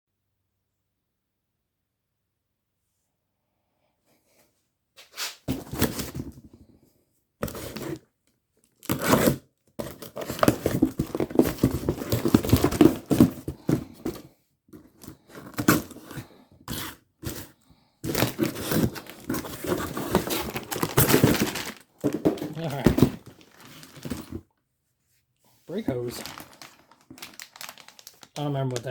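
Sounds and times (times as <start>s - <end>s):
packaging crinkling: 8.8s - 14.2s, 18.1s - 24.4s, 25.7s - 28.9s.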